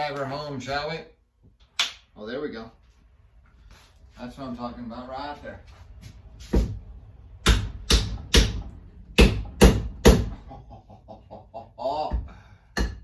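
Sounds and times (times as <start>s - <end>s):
hammer striking axe head: 7.4s - 10.4s, 12.7s - 13.0s.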